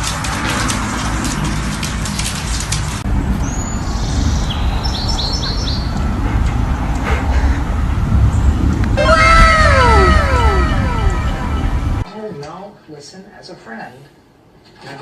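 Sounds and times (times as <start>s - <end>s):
low outdoor rumble: 5.8s - 12.1s.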